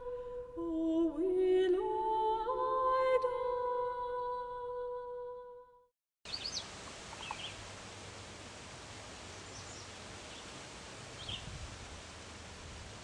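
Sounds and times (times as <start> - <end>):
small birds chirping: 6.3 - 7.6, 9.3 - 11.6
steady soft hiss: 6.3 - 13.0.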